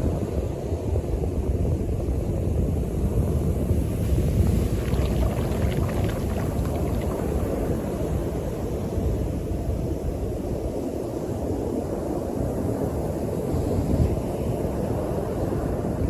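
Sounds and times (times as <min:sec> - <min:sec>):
wind rumble on microphone: 0:00.0 - 0:16.0
water washing up beach: 0:03.6 - 0:09.4
surf at the shore: 0:03.7 - 0:09.2.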